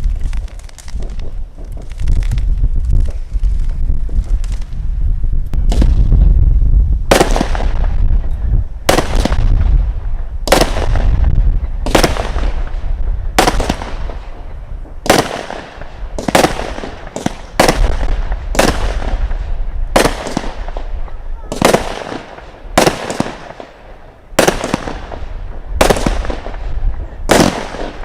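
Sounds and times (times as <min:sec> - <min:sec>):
firework bangs: 0:00.0 - 0:04.9, 0:05.6 - 0:28.0
low rumble: 0:00.0 - 0:15.0.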